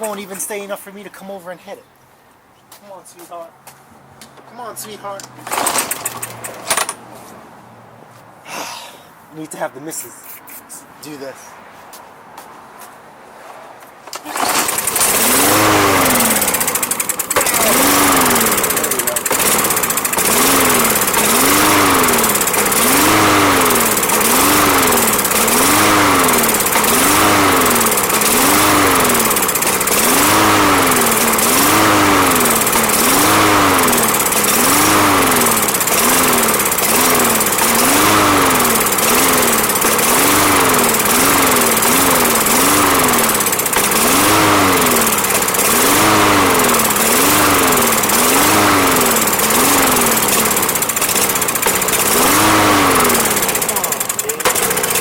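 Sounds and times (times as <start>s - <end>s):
lawn mower engine surging: 5.4s - 7.0s, 14.1s - 55.0s.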